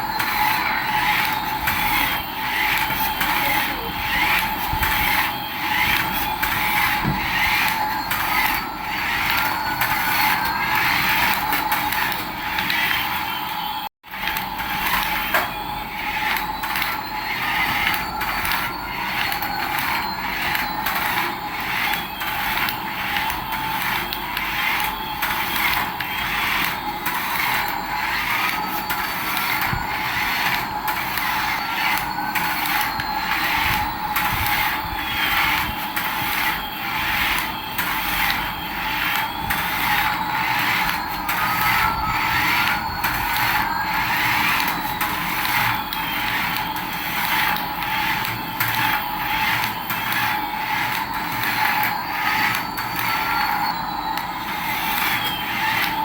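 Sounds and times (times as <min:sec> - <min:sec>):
regular mechanism clicking: 0:00.0 - 0:13.2, 0:14.1 - 0:56.0
toy motor whine: 0:00.0 - 0:56.0.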